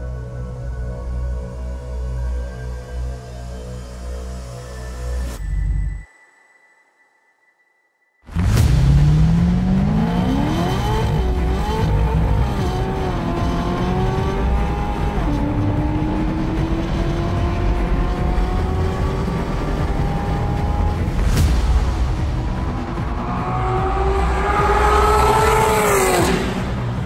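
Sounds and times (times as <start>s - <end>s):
car engine accelerating hard: 8.4s - 21.3s, 22.0s - 27.0s.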